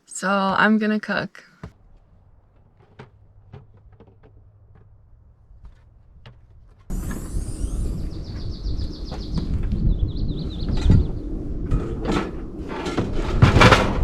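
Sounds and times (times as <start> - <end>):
birds chirping: 6.9 - 12.8
low rumble: 6.9 - 14.0.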